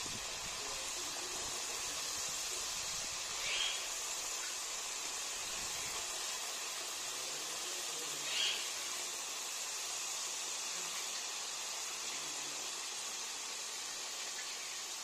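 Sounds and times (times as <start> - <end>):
potatoes deep-frying in oil: 0.0 - 15.0.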